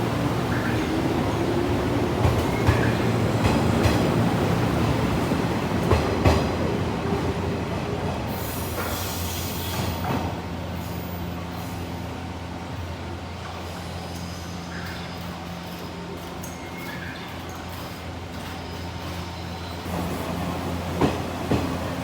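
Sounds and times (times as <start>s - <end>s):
train rumbling on rails: 0.0s - 22.0s
rail joint clicks: 2.2s - 4.6s, 13.4s - 22.0s.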